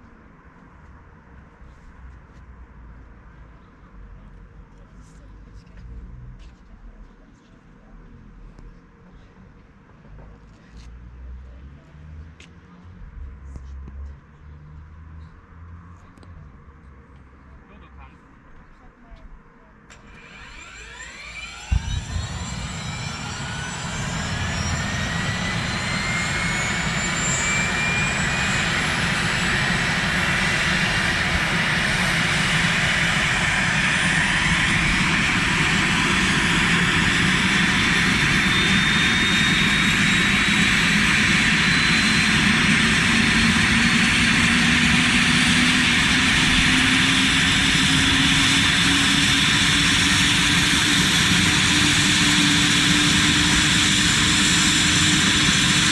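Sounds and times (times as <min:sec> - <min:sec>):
helicopter engine spooling up: 0:19.9 - 0:55.9.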